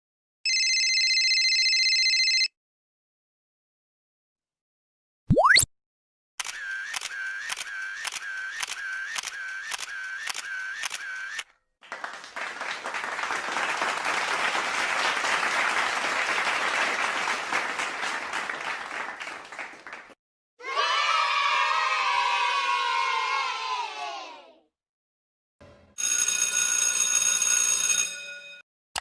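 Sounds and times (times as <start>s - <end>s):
repeated sharp click: 6.4s - 11.4s
applause: 11.8s - 20.2s.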